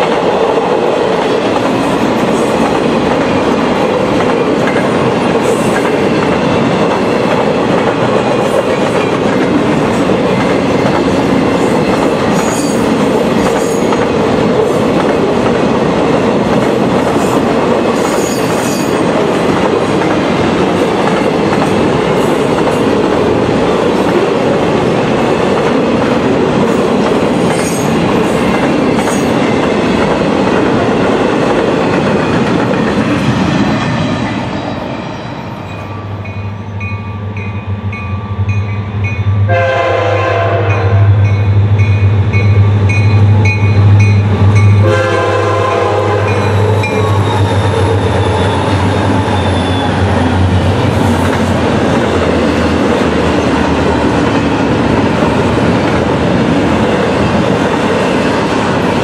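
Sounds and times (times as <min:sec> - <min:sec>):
train cars clickety-clack: 0:00.0 - 0:35.0, 0:35.7 - 0:59.0
crossing bell ringing: 0:12.2 - 0:14.1, 0:35.6 - 0:39.7, 0:40.6 - 0:45.1, 0:46.2 - 0:50.0
diesel locomotive engine humming: 0:19.0 - 0:59.0
train air horn blast: 0:39.5 - 0:41.2, 0:44.8 - 0:47.2.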